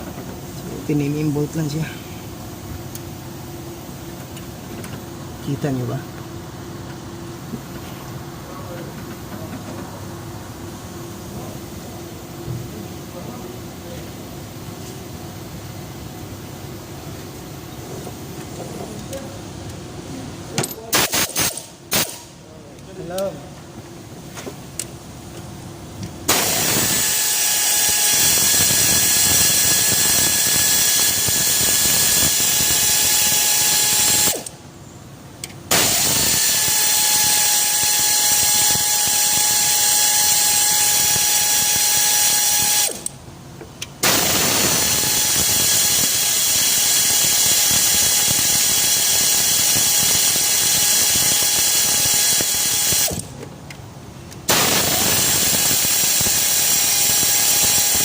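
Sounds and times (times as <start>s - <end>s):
power tool running: 21.0s - 22.3s, 26.3s - 34.6s, 35.7s - 43.1s, 44.0s - 53.3s, 54.5s - 58.0s.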